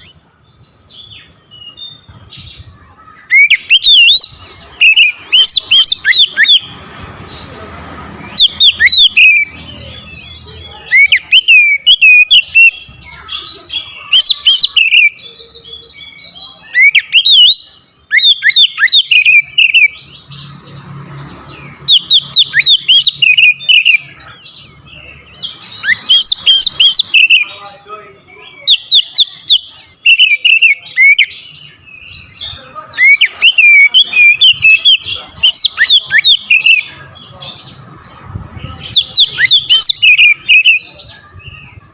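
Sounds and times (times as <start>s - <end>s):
bird singing chirps and whistles: 0.0s - 37.8s, 38.6s - 41.8s.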